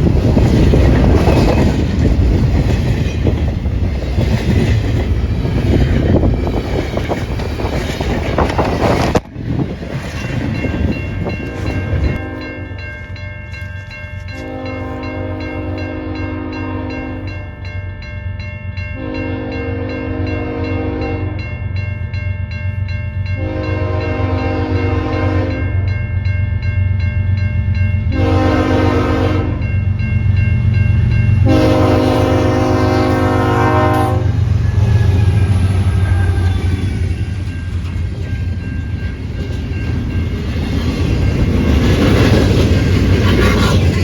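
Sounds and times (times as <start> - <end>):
train rumbling: 0.0 - 44.0
train horn blasts: 11.3 - 12.8, 14.3 - 17.4, 19.0 - 21.5, 23.4 - 25.7, 28.1 - 29.7, 31.4 - 36.9.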